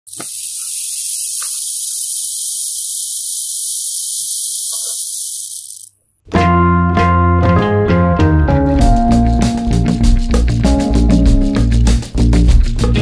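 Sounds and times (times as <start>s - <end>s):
high-pitched hiss: 0.1s - 5.9s
keyboard music with piano notes: 6.3s - 13.0s.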